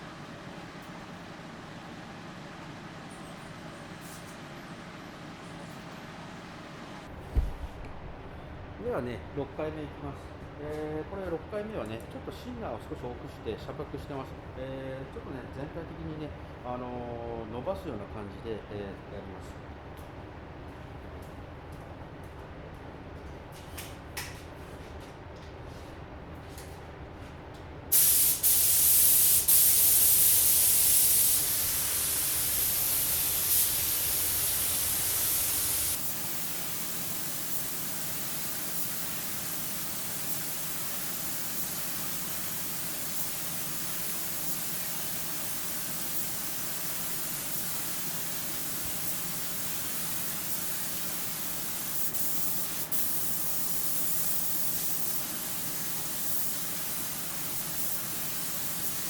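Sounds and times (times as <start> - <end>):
air spray gun hissing: 27.9 - 59.0.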